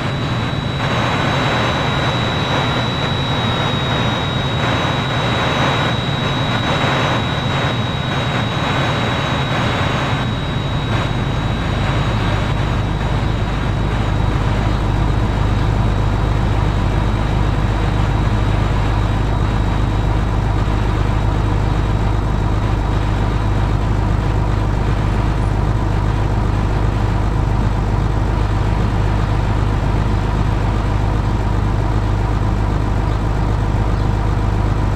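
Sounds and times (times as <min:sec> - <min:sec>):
road noise: 0:00.0 - 0:18.2
low engine drone: 0:00.0 - 0:34.9
thin high whine: 0:00.0 - 0:34.9.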